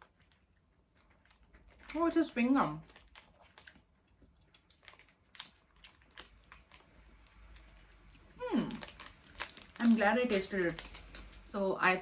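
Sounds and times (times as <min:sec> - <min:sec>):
person chewing gum: 0:02.7 - 0:11.5.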